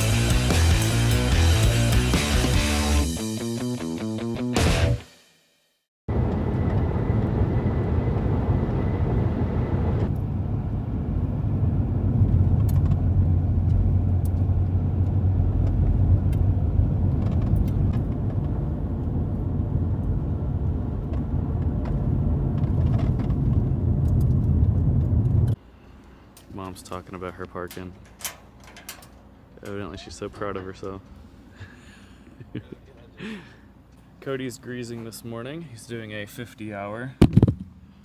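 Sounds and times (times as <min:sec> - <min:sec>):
vehicle engine rumbling: 0:06.1 - 0:34.2.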